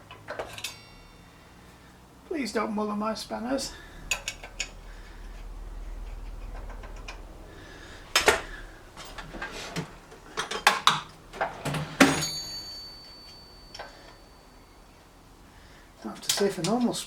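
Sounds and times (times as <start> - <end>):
metal spanners clanking: 0.0 - 1.5, 16.0 - 17.0.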